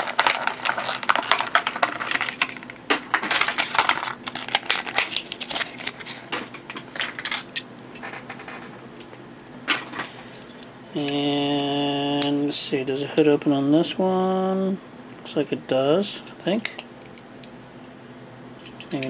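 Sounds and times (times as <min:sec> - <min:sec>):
plastic packaging clicking and clattering: 0:00.0 - 0:08.7.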